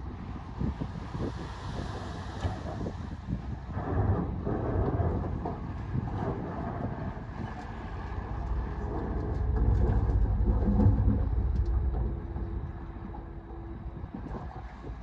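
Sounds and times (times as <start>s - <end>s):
heavy diesel machinery rumbling: 3.4s - 15.0s
faint steady whine: 7.6s - 15.0s.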